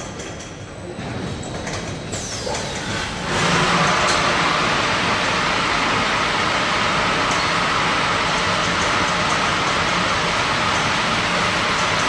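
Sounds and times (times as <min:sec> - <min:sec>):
machine running: 0:02.5 - 0:12.0.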